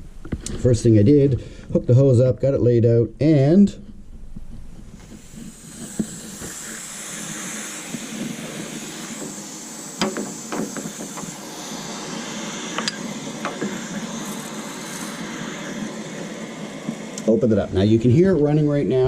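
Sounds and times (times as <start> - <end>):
water rushing through hose: 5.0 - 17.5.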